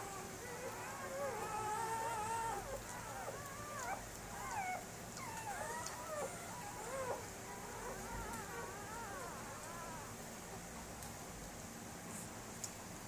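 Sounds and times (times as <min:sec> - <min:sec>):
puppies whining and whimpering: 0:00.0 - 0:10.2.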